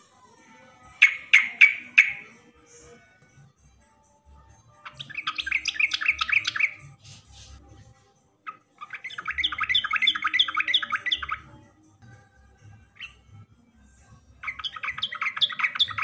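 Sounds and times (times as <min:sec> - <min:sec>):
bulbul singing: 0:00.8 - 0:02.8, 0:04.7 - 0:07.6, 0:08.4 - 0:13.4, 0:14.3 - 0:16.0.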